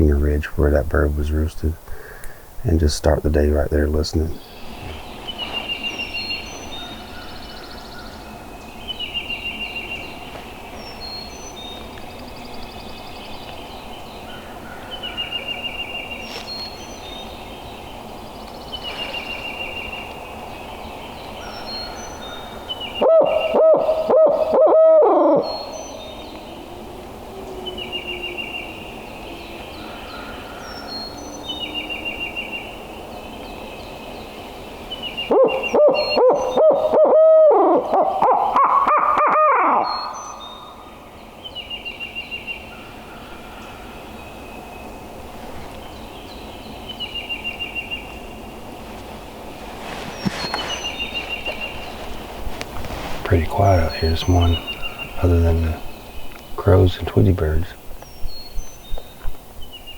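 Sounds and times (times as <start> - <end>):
owl hooting: 21.4 - 28.5, 35.2 - 41.0
songbird trilling: 34.9 - 37.0, 37.8 - 43.3, 53.3 - 59.9.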